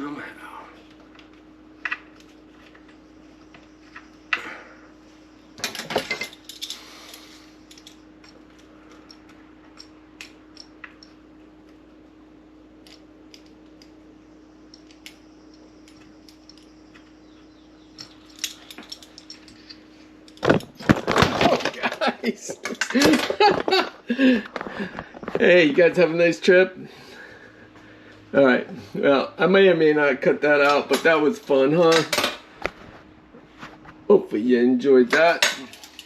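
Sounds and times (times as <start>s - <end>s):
faint steady hum: 0.0s - 36.0s
metal parts clicking and rattling: 5.6s - 11.2s, 17.9s - 22.0s, 35.0s - 36.0s
loud clatter of falling object: 20.4s - 22.0s.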